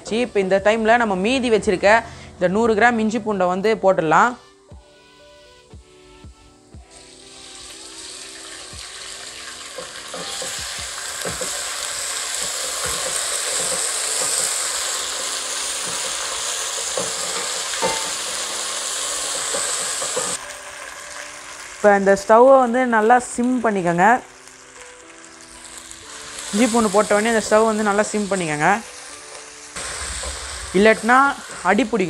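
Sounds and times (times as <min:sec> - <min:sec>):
paste sizzling in hot oil: 0:06.8 - 0:32.0.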